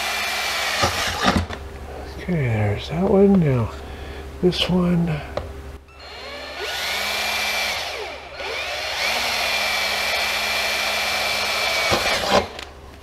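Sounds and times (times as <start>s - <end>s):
power drill boring through aluminum: 0.0s - 1.4s, 6.0s - 12.6s.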